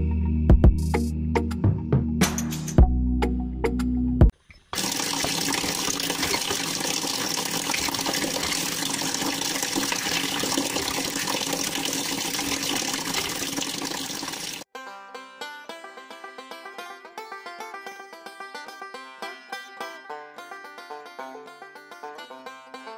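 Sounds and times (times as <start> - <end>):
water pouring into metal dish: 4.8 - 14.6.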